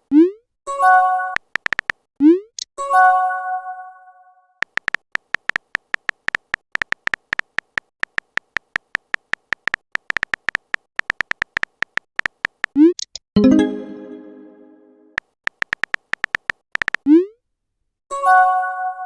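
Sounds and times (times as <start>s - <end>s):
phone keyboard typing clicks: 1.3s - 2.6s, 4.6s - 13.2s, 15.2s - 17.1s.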